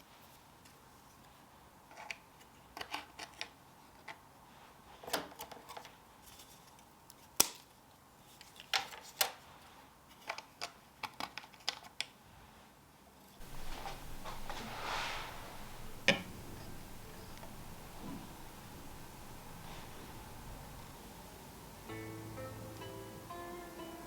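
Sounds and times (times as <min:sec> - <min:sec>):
tableware clicking on table: 0:13.4 - 0:20.9.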